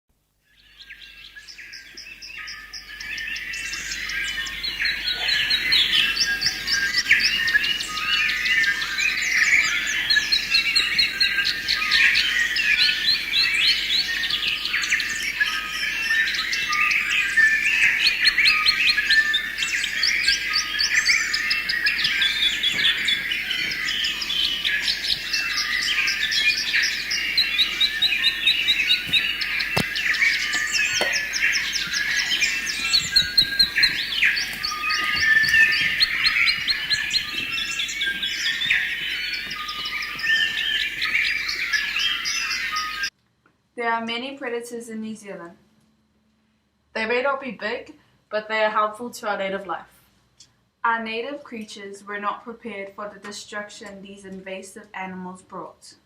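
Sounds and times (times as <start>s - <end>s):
songbirds chirping and trilling: 0.4s - 43.1s.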